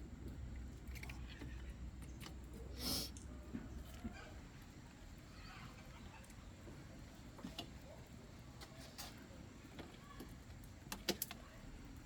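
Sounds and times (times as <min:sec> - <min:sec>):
faint clicks and light knocks: 0:08.6 - 0:11.5.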